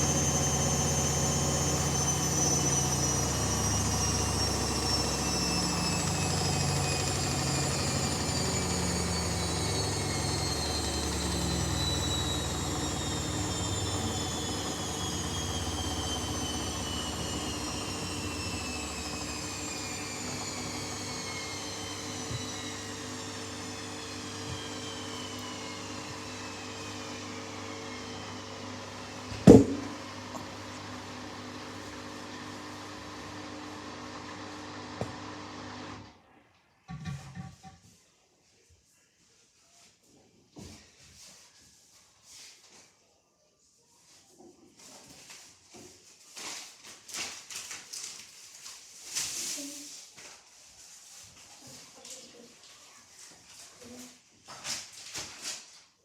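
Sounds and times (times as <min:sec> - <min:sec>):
washing machine motor spinning down: 0:00.0 - 0:36.3.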